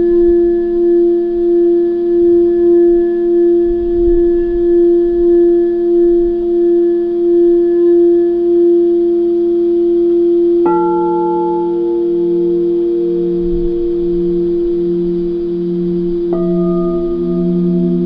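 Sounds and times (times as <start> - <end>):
singing bowl tone: 0.0 - 18.0.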